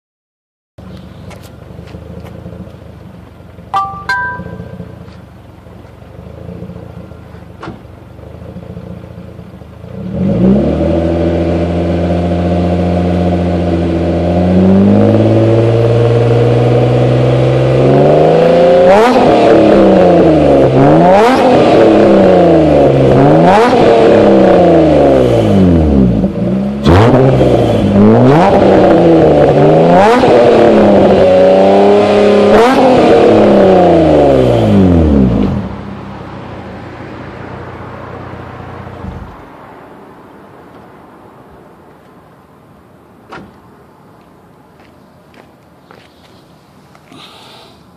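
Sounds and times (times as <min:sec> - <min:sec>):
short electronic tones: 0:03.8 - 0:05.0
car engine starting and revving: 0:04.7 - 0:40.0.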